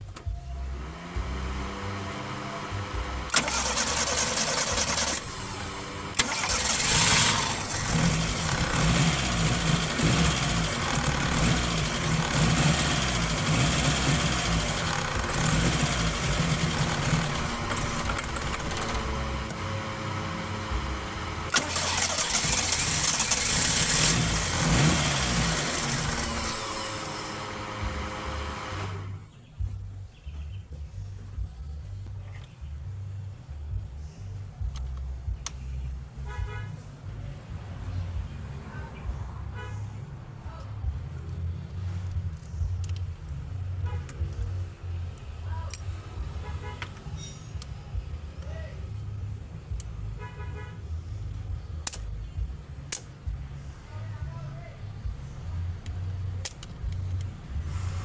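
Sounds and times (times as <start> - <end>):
car engine cranking and starting: 0.0 - 29.3.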